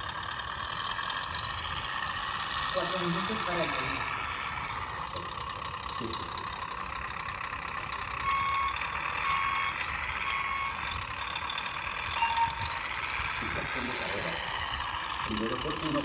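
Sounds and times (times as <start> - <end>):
short electronic beeps: 8.2 - 10.9, 12.1 - 12.6.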